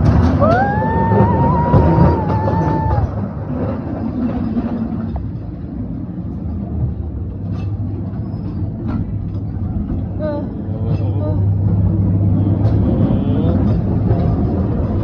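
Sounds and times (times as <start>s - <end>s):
ride car rumbling along track: 0.0s - 15.0s.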